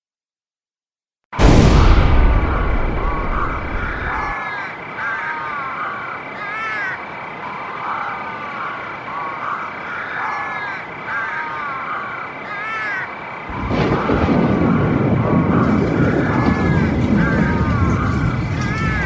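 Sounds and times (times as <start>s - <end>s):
low rumble: 1.4s - 4.4s
arching animal calls: 2.7s - 19.0s.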